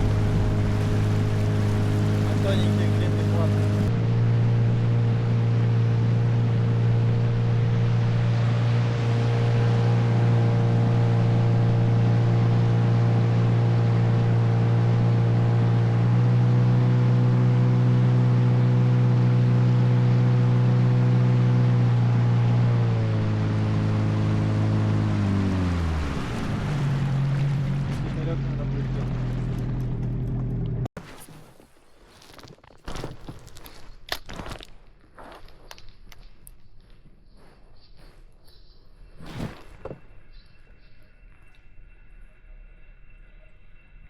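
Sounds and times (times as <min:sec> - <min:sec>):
outboard boat engine running: 0:00.0 - 0:30.9.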